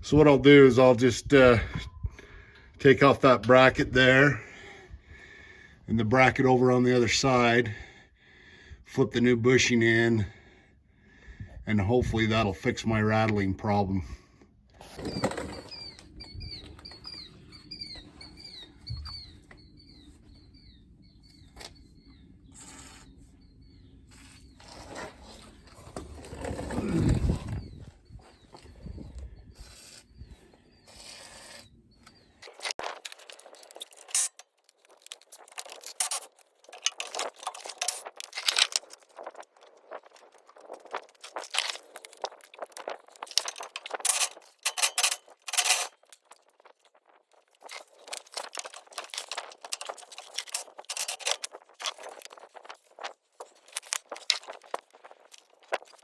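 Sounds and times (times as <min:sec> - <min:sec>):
small bird chirping: 0:15.4 - 0:24.7
tools clinking on metal parts: 0:32.4 - 0:39.2, 0:40.6 - 0:46.5, 0:47.6 - 0:52.7, 0:53.5 - 0:56.0
knocks and rustles: 0:32.4 - 0:56.0.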